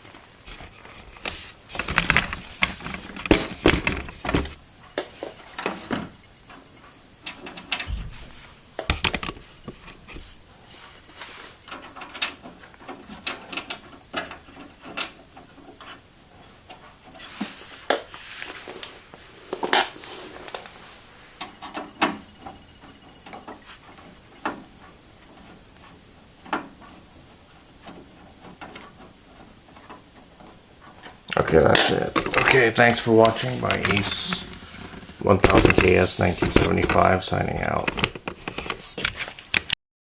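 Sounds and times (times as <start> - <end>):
computer case clicks and knocks: 1.7 - 4.6, 7.3 - 10.2, 31.6 - 37.2
rubbing on metal case: 23.5 - 37.2.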